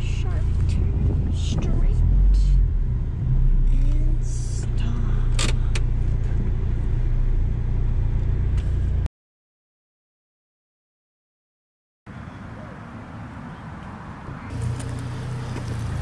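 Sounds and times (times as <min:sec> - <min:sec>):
car engine running: 0:00.0 - 0:09.1, 0:14.2 - 0:16.0.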